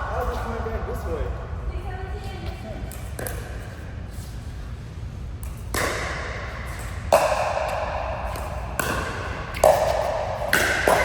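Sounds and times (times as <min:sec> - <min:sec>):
racket striking ball: 0:05.4 - 0:11.0.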